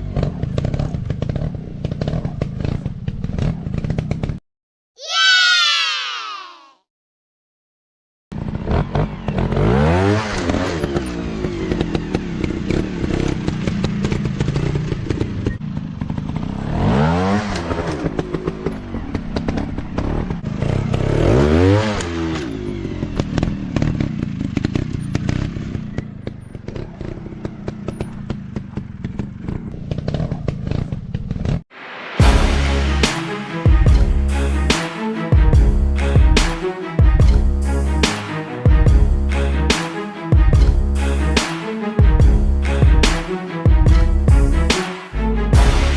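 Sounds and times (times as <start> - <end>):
motocross bike engine revving: 0.0 - 4.3, 8.4 - 31.6.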